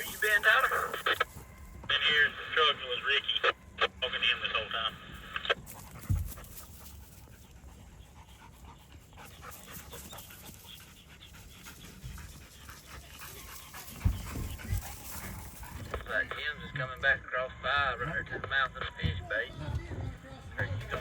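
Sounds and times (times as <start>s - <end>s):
dog panting rapidly: 5.6s - 16.1s
dull low thumps: 5.8s - 6.6s.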